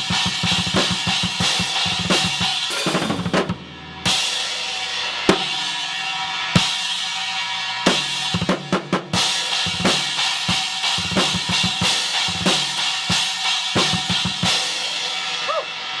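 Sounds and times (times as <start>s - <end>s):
ringing cymbal wash: 4.0s - 16.0s.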